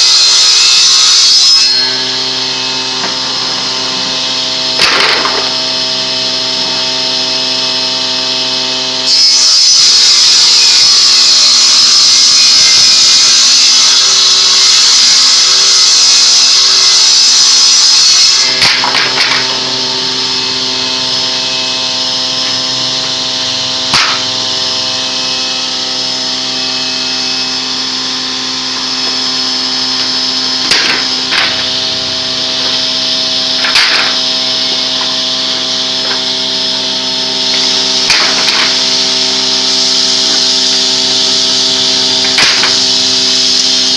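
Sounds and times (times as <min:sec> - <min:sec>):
woodworking machine running: 0:00.0 - 0:43.9
harsh cutting noise: 0:10.6 - 0:43.9.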